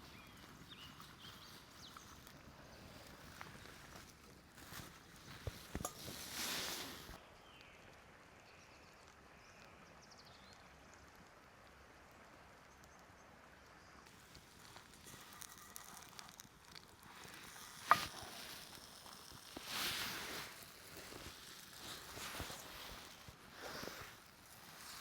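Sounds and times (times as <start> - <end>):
handling rustles: 0.1 - 7.2, 14.2 - 25.0.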